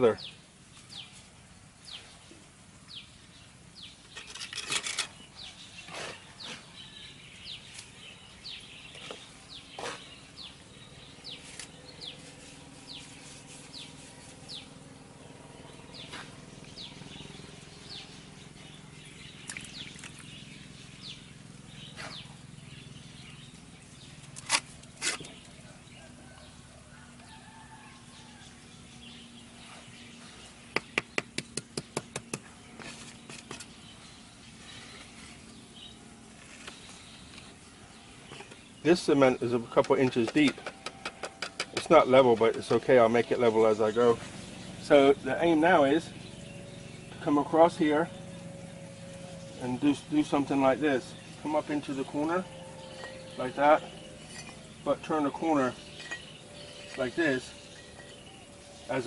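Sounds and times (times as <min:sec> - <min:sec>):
bird chirping: 0:00.0 - 0:59.0
taps and knocks: 0:30.7 - 0:32.5, 0:39.9 - 0:41.9.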